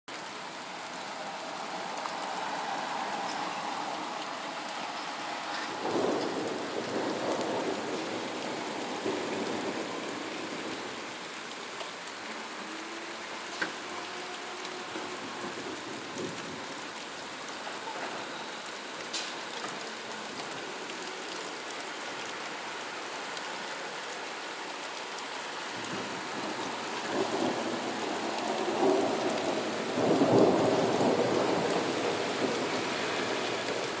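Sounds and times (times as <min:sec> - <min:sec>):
steady rain: 0:00.1 - 0:34.0
rolling thunder: 0:05.5 - 0:11.0, 0:25.8 - 0:34.0.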